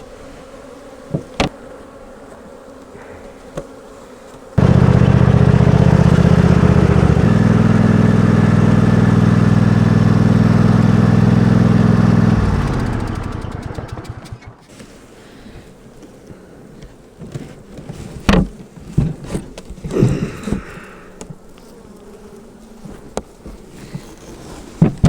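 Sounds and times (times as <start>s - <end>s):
faint hum of bees: 0.0s - 6.3s, 14.7s - 25.0s
bee buzzing at microphone: 0.0s - 11.2s, 18.2s - 24.1s.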